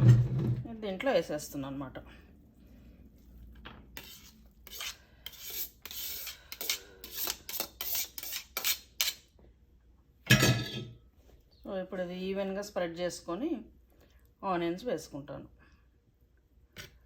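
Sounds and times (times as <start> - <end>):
utensil scraping a pot: 3.9 - 9.3.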